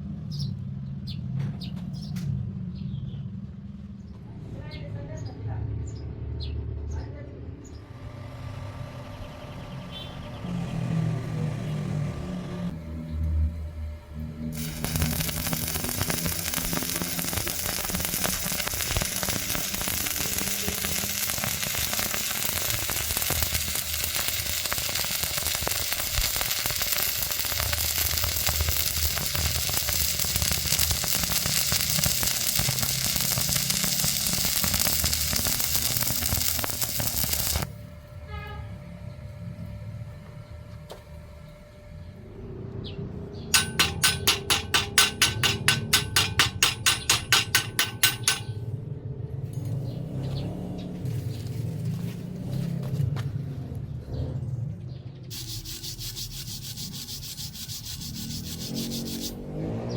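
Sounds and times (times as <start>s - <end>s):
welding arc crackling: 14.4s - 37.8s, 43.6s - 48.7s, 55.3s - 59.5s.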